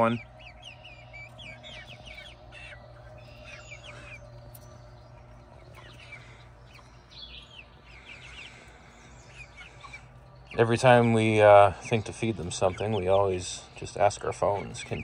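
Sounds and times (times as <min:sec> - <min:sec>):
bird chirps: 0:00.0 - 0:15.0
steady low hum: 0:00.0 - 0:15.0.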